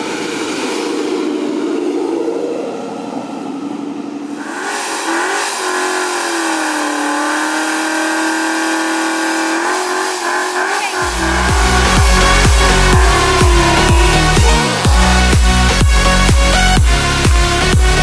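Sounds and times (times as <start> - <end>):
car engine revving: 2.7 - 18.0.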